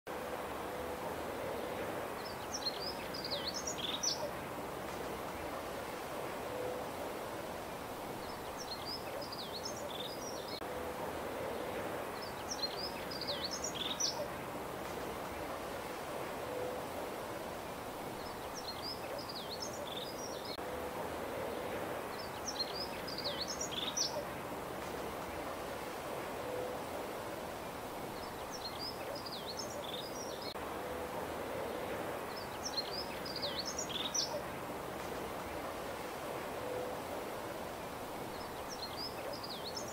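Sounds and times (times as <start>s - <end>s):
songbird chirping: 0.1s - 39.9s
steady outdoor hiss: 0.1s - 39.9s
songbird twittering: 2.2s - 4.4s, 8.2s - 10.6s, 12.2s - 14.3s, 22.1s - 24.3s, 28.1s - 30.6s, 32.3s - 34.4s.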